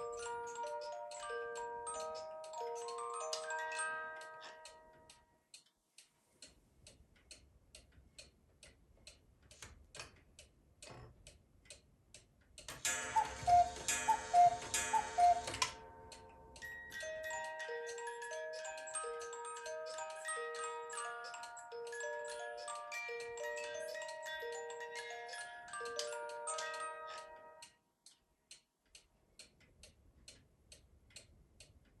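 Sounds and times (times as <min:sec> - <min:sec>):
music box tune: 0:00.0 - 0:05.4, 0:12.8 - 0:27.8
clock ticking: 0:00.0 - 0:32.0
two-note cuckoo call: 0:12.9 - 0:15.8.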